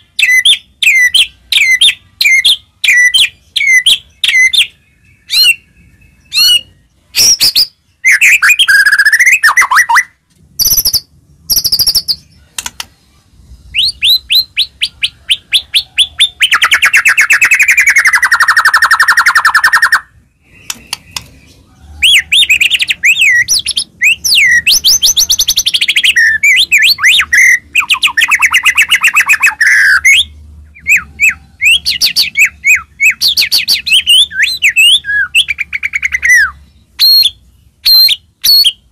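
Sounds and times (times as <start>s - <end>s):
songbird whistling and chirping: 0.0s - 12.9s, 13.5s - 38.9s.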